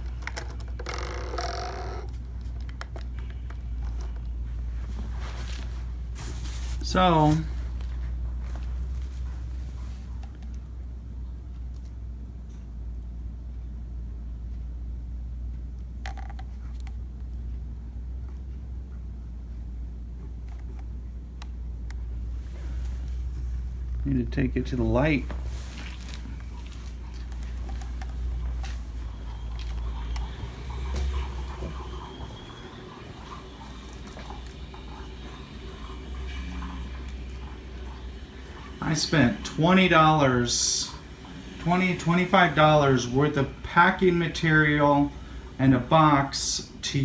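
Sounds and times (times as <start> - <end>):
steady low hum: 0.0 - 47.0
handling clicks and rustles: 2.1 - 10.6, 24.8 - 35.0.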